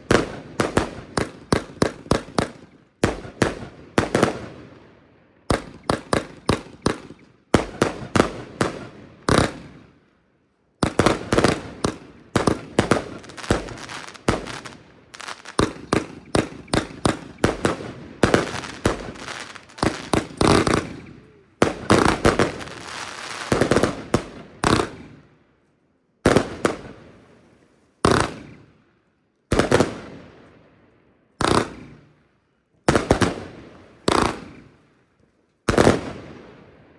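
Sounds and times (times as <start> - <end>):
firework battery shots: 5.5 - 9.9, 10.8 - 25.2, 31.4 - 32.2.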